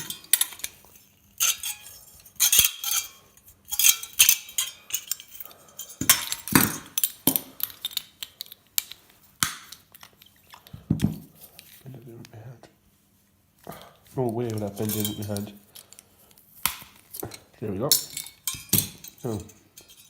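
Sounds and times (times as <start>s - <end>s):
metal parts clinking and clattering: 0.0s - 9.0s, 14.4s - 16.0s, 17.0s - 20.0s.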